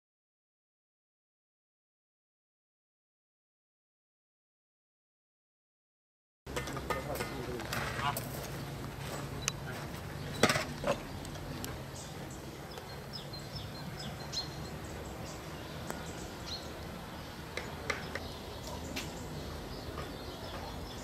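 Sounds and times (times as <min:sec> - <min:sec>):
birds chirping faintly: 0:06.5 - 0:21.0
outdoor background hum: 0:06.5 - 0:21.0.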